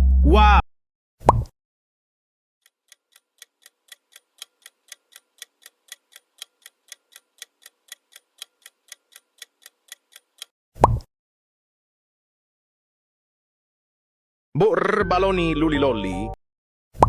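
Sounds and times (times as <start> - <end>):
clock ticking: 2.6 - 10.5.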